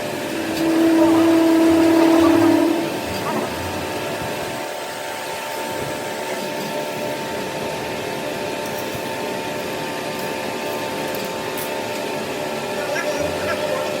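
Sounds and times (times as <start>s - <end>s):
workshop machine whining: 0.0s - 14.0s.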